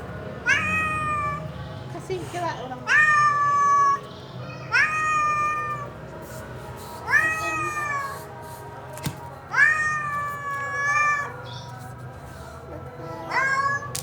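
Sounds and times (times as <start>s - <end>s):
cat meowing: 0.4s - 1.4s, 2.9s - 5.9s, 7.1s - 8.2s, 9.5s - 11.8s, 13.1s - 14.0s.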